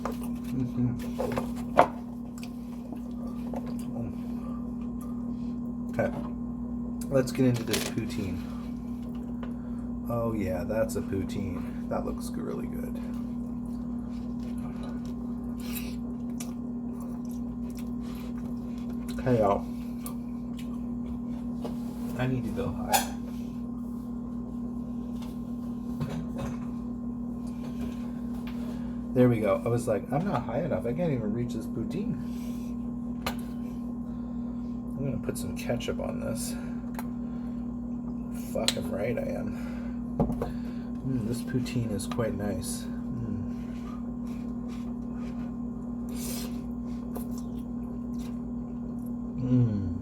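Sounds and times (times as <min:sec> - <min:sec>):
soft chewing and rustling: 0:00.0 - 0:06.0, 0:13.0 - 0:22.2, 0:43.0 - 0:49.3
low electrical hum: 0:00.0 - 0:50.0.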